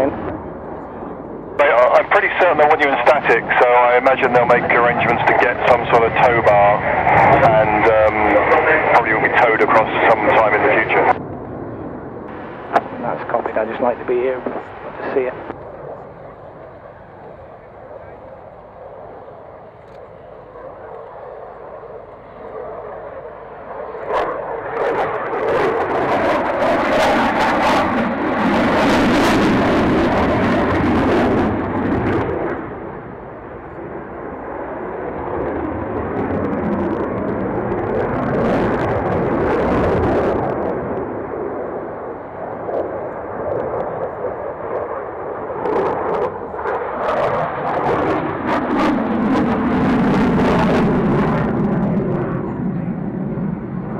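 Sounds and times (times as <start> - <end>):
aircraft engine roar: 0.0 - 53.9.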